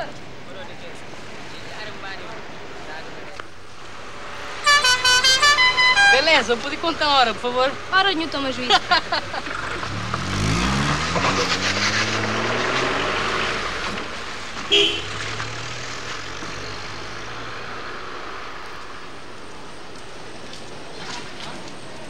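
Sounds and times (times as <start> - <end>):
street noise: 0.0 - 22.0
car engine speeding up: 9.3 - 18.8.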